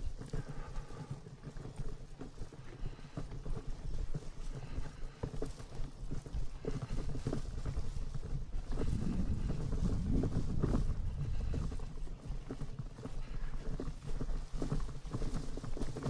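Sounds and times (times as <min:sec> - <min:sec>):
steady low rumble: 0:08.4 - 0:13.6.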